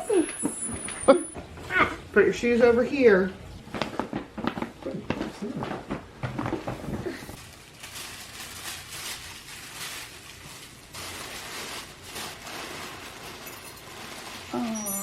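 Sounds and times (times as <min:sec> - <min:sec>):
wrapping paper rustling: 0:06.4 - 0:15.0.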